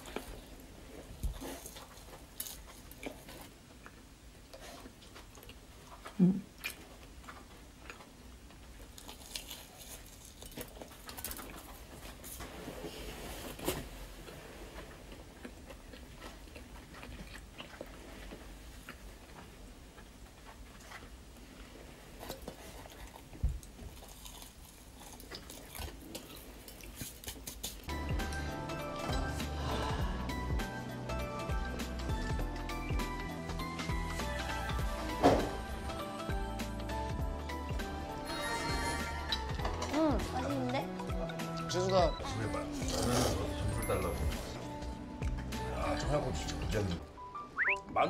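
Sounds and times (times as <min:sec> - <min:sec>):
chewing fried food: 0:00.0 - 0:12.5, 0:14.2 - 0:28.4.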